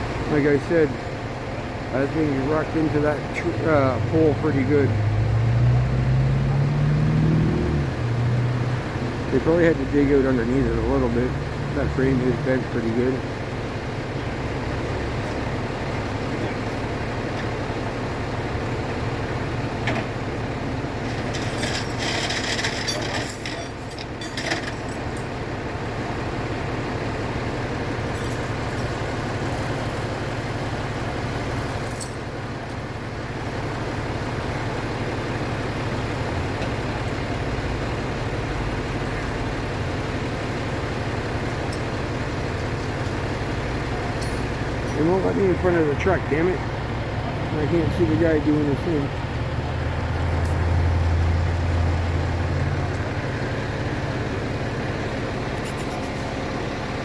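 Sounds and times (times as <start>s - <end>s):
truck engine running: 0.0s - 57.0s
metallic clinking and rattling: 21.0s - 26.2s, 27.4s - 33.2s, 38.8s - 45.0s.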